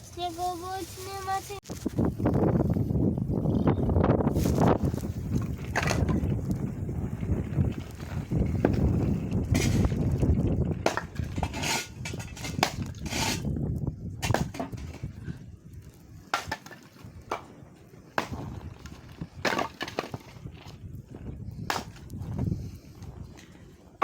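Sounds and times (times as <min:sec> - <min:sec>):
wood splitting cracks: 0:16.3 - 0:17.5, 0:18.2 - 0:20.7.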